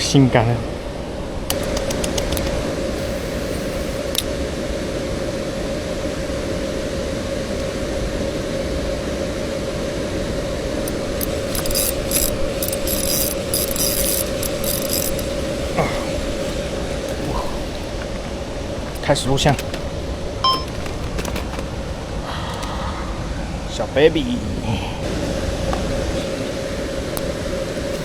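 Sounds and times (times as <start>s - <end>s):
faint steady hum: 0.0s - 28.0s
rapid irregular clicking: 1.5s - 4.3s, 10.8s - 22.2s.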